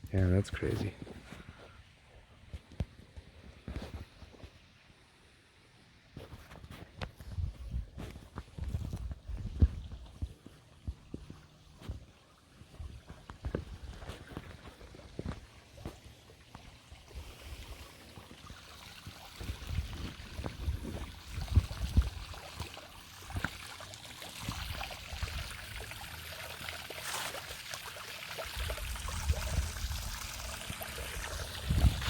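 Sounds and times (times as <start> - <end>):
water trickling over rocks: 5.8 - 32.0
microphone thumps and rumbles: 8.6 - 10.0, 31.6 - 32.0.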